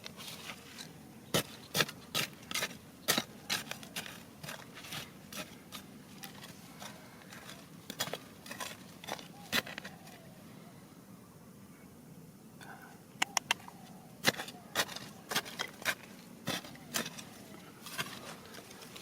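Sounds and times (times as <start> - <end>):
stones and gravel clicking and scraping: 0.0 - 10.0, 14.2 - 19.0.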